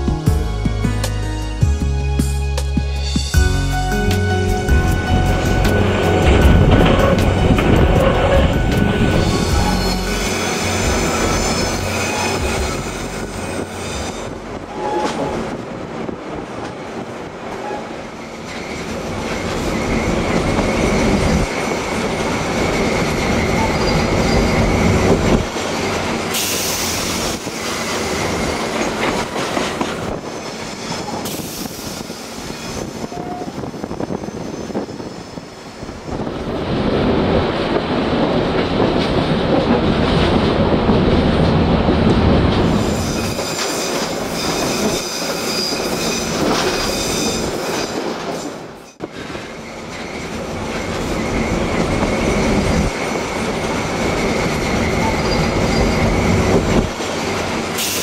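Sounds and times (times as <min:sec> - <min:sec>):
train wheels rumbling on track: 0:00.0 - 0:58.0
faint high wheel squeal: 0:54.9 - 0:56.2.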